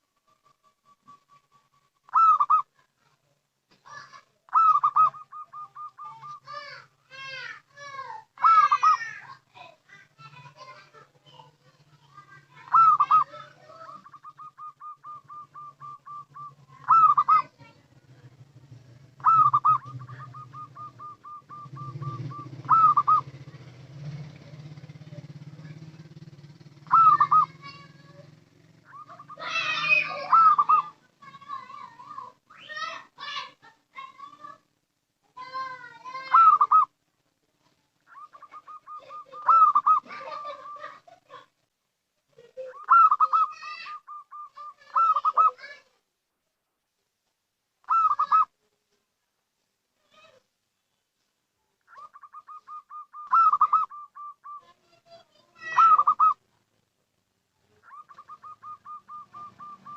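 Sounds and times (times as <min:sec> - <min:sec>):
dove cooing: 0:00.2 - 0:02.9, 0:03.9 - 0:09.3, 0:09.9 - 0:32.9, 0:35.4 - 0:36.9, 0:38.1 - 0:41.5, 0:42.4 - 0:45.8, 0:47.8 - 0:48.5, 0:51.9 - 0:56.4, 0:57.7 - 0:59.9.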